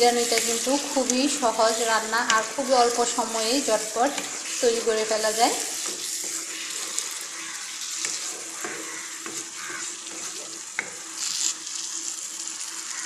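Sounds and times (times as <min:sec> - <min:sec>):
food sizzling in a wok: 0:00.0 - 0:13.0
spatula clicking: 0:00.2 - 0:01.2.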